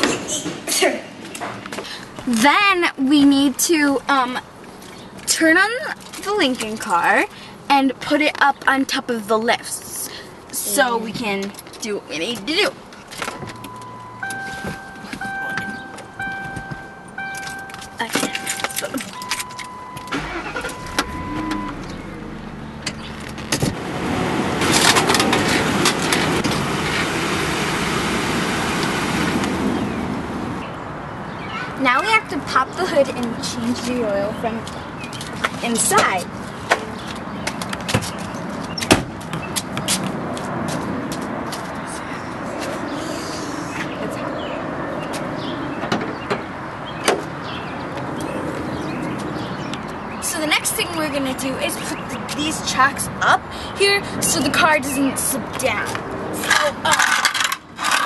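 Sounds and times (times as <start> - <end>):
garage background noise: 0.0 - 27.2
car engine running: 13.2 - 30.6
warning chime: 13.4 - 22.4
sharp clicks and knocks: 22.8 - 23.8.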